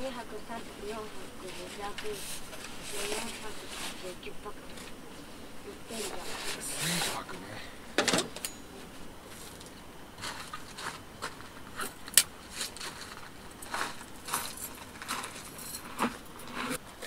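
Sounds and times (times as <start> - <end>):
camp gear rustling and clicking: 0.9 - 5.2, 8.0 - 16.9.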